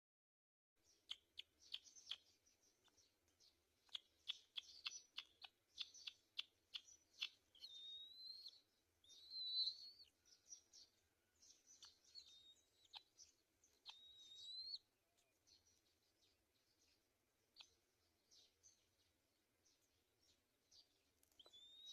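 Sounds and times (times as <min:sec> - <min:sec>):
bird chips: 0:00.9 - 0:10.1
rising whistled bird notes: 0:07.2 - 0:10.5, 0:13.9 - 0:14.8, 0:21.4 - 0:21.9.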